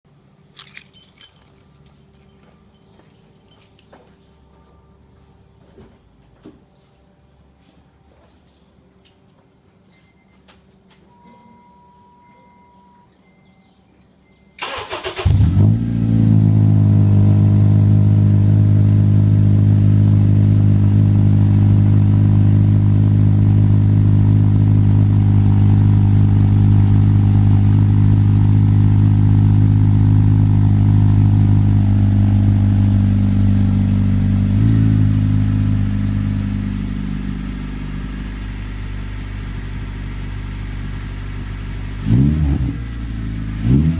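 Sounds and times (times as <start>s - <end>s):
car starter cranking: 14.6s - 15.7s
car engine idling: 14.6s - 43.8s.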